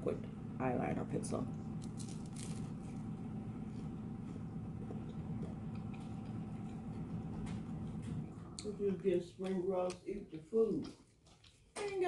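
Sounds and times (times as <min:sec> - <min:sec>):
low hum: 0:00.0 - 0:09.8
person chewing crunchy food: 0:04.7 - 0:08.6.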